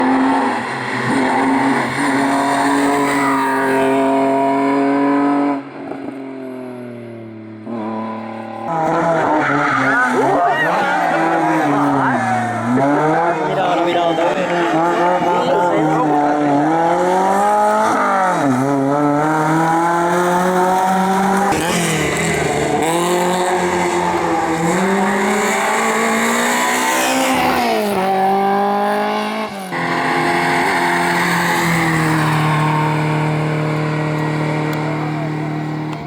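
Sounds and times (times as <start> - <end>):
race car engine revving: 6.8 - 36.0.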